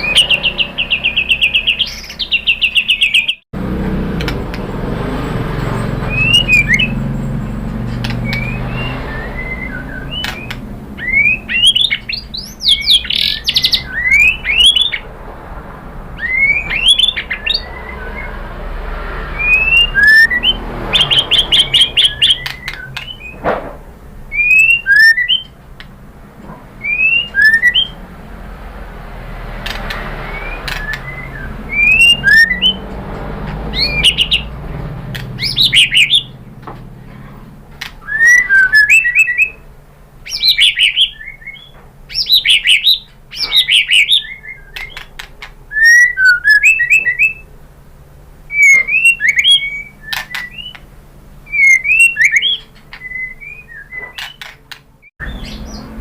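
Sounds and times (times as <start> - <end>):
bird fast trills: 0.0 - 3.4, 5.8 - 15.1, 16.1 - 23.4, 24.3 - 25.6, 26.8 - 28.1, 29.4 - 36.5, 37.8 - 47.5, 48.5 - 50.8, 51.5 - 56.0
sharp clicks: 4.2 - 4.7, 7.9 - 8.6, 21.5 - 23.2, 29.6 - 31.1, 35.1 - 35.6
bird singing rising whistles: 6.0 - 7.1, 8.0 - 15.0, 16.2 - 18.6, 19.3 - 23.4, 24.3 - 25.6, 26.8 - 28.0, 29.8 - 32.8, 33.7 - 34.6, 35.4 - 36.4, 38.0 - 39.6, 40.2 - 45.1, 45.7 - 47.5, 48.5 - 50.8, 51.5 - 54.5.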